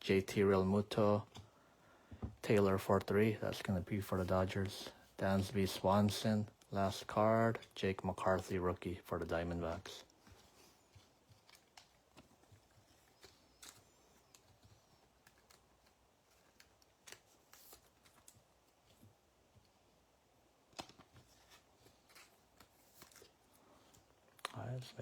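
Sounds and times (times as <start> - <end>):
trading cards clicking and rustling: 5.4 - 19.1, 20.7 - 25.0.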